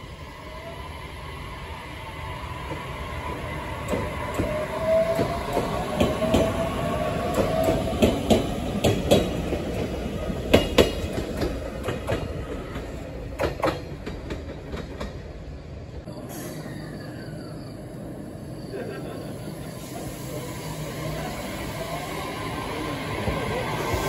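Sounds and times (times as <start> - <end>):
train wheels clacking over rail joints: 7.2 - 15.3.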